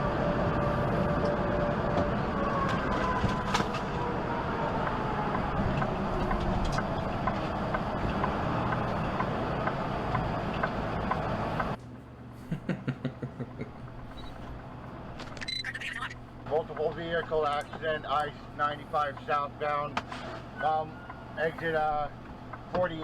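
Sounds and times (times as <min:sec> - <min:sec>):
road and engine noise: 0:00.0 - 0:23.0.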